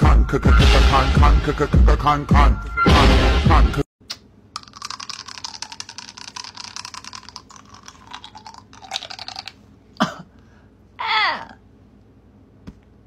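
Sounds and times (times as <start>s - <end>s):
lollipop crunching between teeth: 4.6s - 9.6s.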